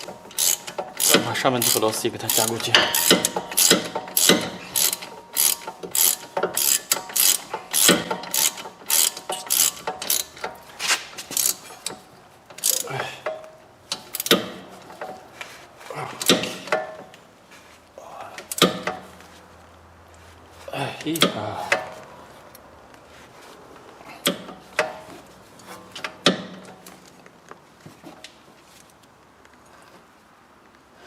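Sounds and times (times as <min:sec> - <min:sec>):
ratchet wrench clicking: 0:00.0 - 0:10.6, 0:11.2 - 0:12.9, 0:13.9 - 0:15.1.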